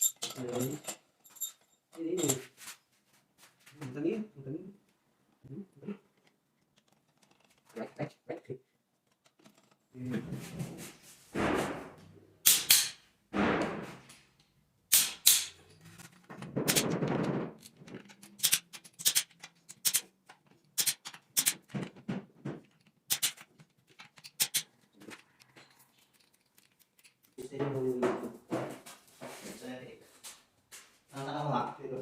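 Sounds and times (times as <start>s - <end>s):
metal tools clicking and knocking: 0.0s - 2.4s, 14.9s - 21.8s, 22.6s - 27.4s.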